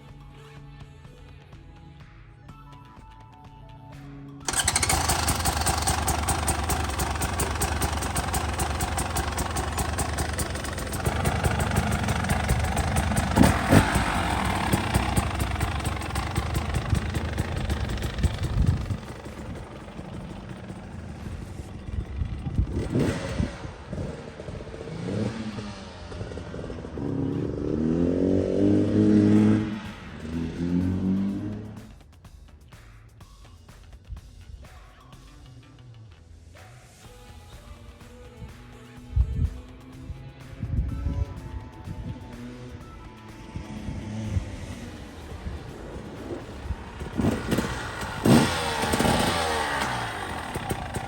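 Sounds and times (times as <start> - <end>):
dirt bike engine revving: 4.5 - 31.9, 43.5 - 51.0.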